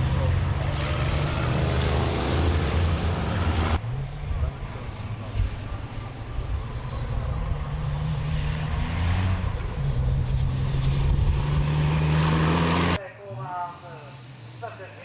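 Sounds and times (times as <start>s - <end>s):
race truck engines: 0.0s - 15.0s.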